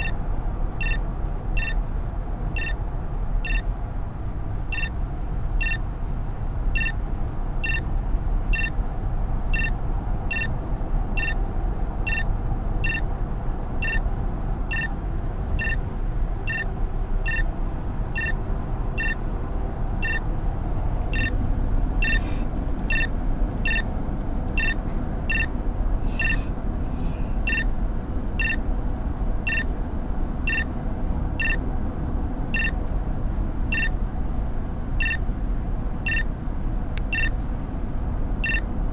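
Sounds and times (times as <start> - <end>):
car road and engine noise: 0.0 - 38.9
short electronic beep: 0.8 - 1.0, 1.6 - 1.8, 3.4 - 3.6, 6.8 - 7.0, 7.6 - 7.8, 10.3 - 10.5, 12.1 - 13.0, 14.7 - 14.9, 15.6 - 15.8, 16.5 - 16.7, 17.3 - 17.5, 18.2 - 18.4, 19.0 - 19.2, 20.0 - 20.2, 21.1 - 21.3, 22.9 - 23.8, 24.6 - 25.5, 27.5 - 27.7, 28.4 - 28.6, 29.5 - 29.7, 30.5 - 30.7, 33.7 - 33.9, 37.1 - 37.3.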